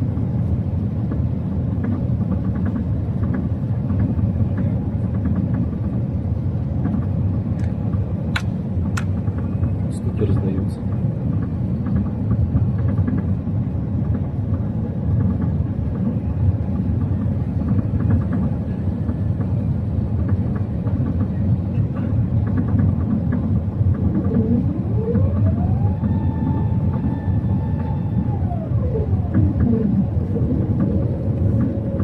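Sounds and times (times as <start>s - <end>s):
airliner cabin rumble: 0.0s - 32.0s
whine rising in pitch: 23.6s - 32.0s.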